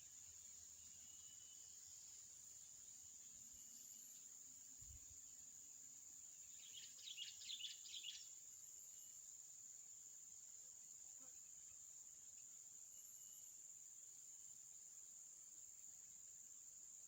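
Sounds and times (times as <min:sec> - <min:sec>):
high-pitched insect drone: 0:00.2 - 0:05.2, 0:12.9 - 0:13.7.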